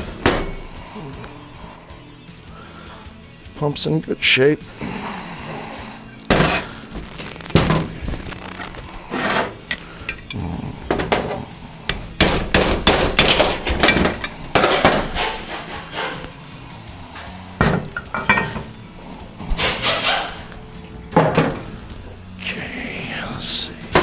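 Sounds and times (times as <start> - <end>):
metal parts clunking and scraping: 0.0 - 1.6, 6.2 - 22.6, 23.2 - 24.0.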